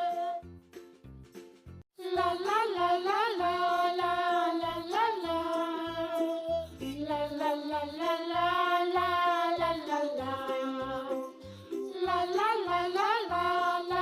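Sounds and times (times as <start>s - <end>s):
children's music with low beat: 0.0s - 14.0s.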